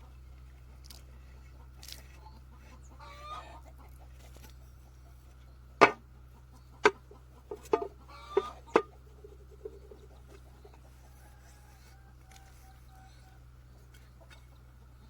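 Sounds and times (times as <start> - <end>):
chickens clucking: 0.0 - 15.0
steady low hum: 0.0 - 15.0
sharp knocks: 5.8 - 6.0, 6.8 - 8.9.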